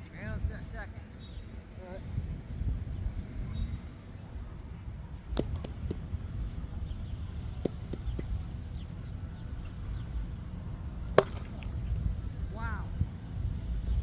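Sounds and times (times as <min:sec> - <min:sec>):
wind rumbling on microphone: 0:00.0 - 0:14.0
plastic bat hitting ball: 0:05.3 - 0:06.0, 0:07.6 - 0:08.3, 0:11.0 - 0:12.2.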